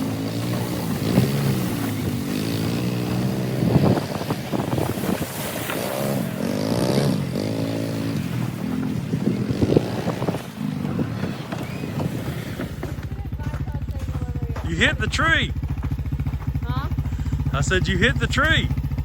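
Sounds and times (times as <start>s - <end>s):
atv engine revving: 0.0s - 19.0s.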